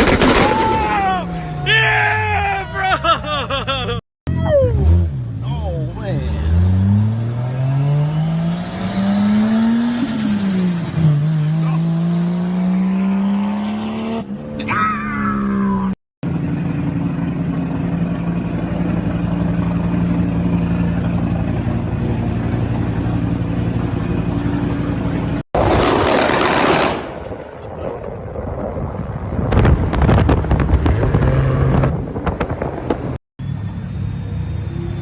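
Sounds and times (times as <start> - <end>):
car engine steady drone: 0.8 - 25.5
car engine revving: 4.7 - 14.4.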